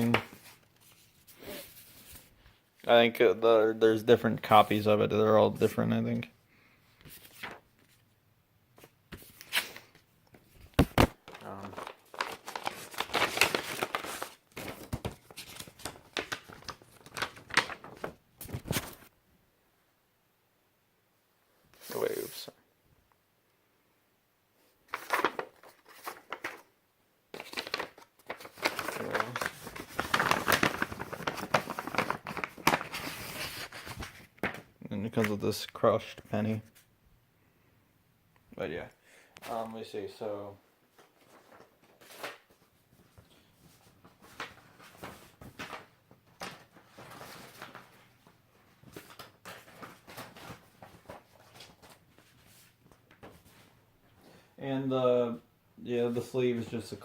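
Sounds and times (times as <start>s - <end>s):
packaging crinkling and rustling: 10.8s - 19.1s, 24.9s - 26.7s, 27.4s - 34.7s, 41.0s - 53.7s
sharp crackles of packaging: 11.1s - 19.1s, 27.4s - 34.6s
packaging rustling and scraping: 27.4s - 34.4s, 41.0s - 48.1s.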